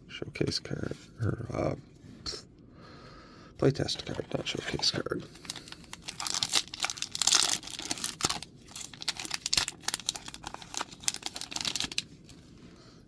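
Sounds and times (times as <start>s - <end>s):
wrapper torn and crinkled: 5.4s - 12.4s.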